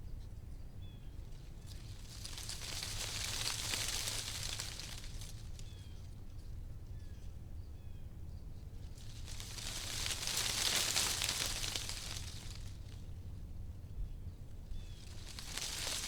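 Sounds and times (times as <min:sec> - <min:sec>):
wind rustling tree leaves: 0:01.1 - 0:06.4, 0:08.8 - 0:13.8, 0:14.5 - 0:16.0.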